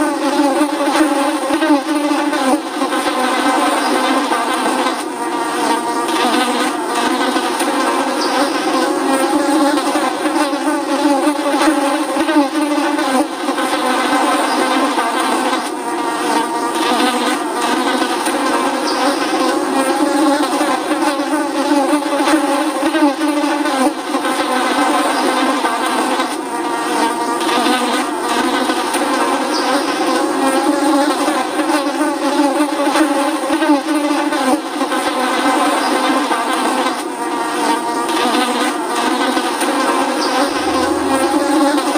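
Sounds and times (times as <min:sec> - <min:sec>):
flies buzzing: 0:00.0 - 0:41.9.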